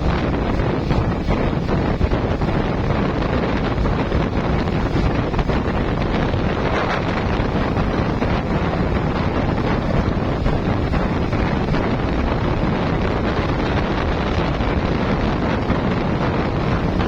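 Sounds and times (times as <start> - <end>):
boat engine running: 0.0 - 17.0
water: 0.0 - 17.0
wind buffeting microphone: 0.0 - 17.0.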